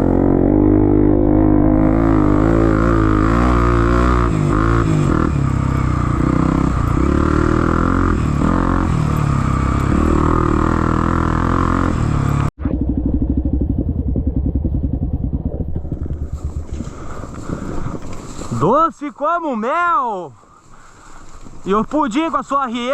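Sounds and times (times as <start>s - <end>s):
motorcycle engine revving: 0.0s - 18.4s
engine chugging at low revs: 12.2s - 17.6s.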